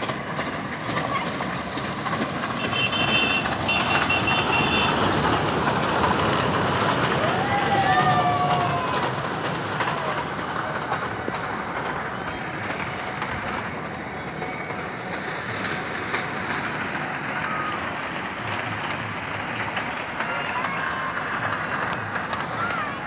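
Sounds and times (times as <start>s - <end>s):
miniature train running: 0.0s - 23.0s.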